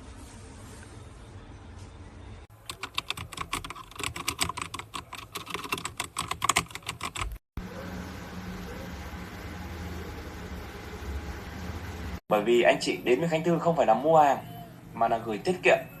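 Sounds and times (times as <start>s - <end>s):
fast typing on mechanical keyboard: 2.6s - 7.4s.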